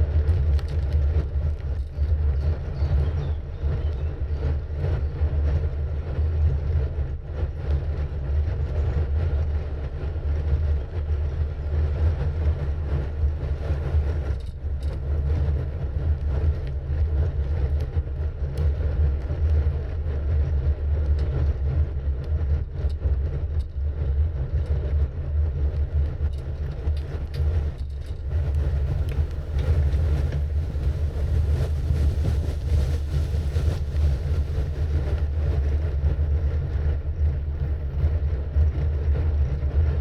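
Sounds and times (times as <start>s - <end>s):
wind rumble on microphone: 0.0s - 40.0s
road noise: 25.2s - 36.4s.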